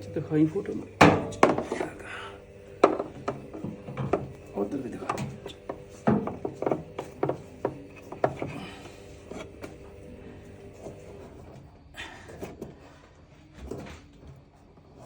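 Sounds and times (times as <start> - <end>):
hard objects knocking and clicking: 1.0 - 2.0, 2.8 - 9.8
rubbing and scraping: 2.9 - 11.5.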